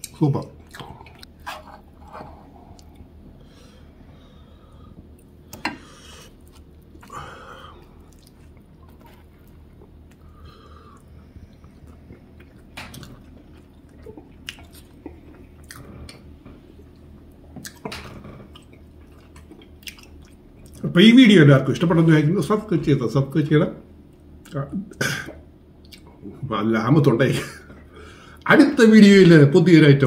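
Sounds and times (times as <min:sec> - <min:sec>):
man chewing food: 0:00.0 - 0:20.9, 0:24.0 - 0:26.3.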